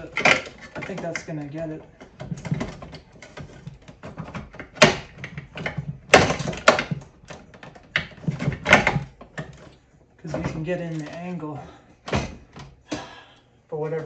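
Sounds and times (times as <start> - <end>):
knocks and clunks: 0.0 - 14.0.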